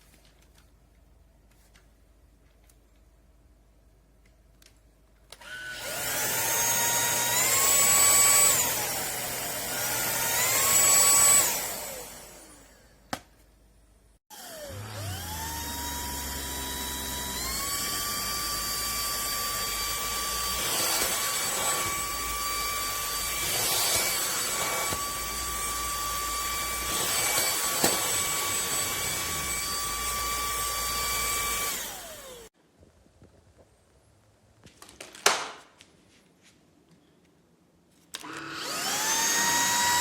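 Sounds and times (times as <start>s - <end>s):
vacuum cleaner motor whining: 5.4s - 13.0s, 14.3s - 32.5s, 38.2s - 40.0s.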